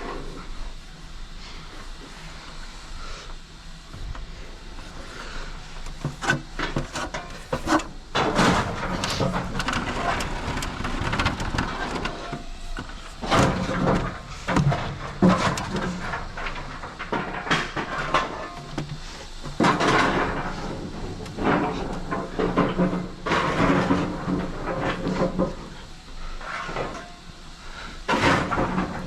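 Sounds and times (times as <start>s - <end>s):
metallic clanks and scrapes: 5.9s - 27.4s.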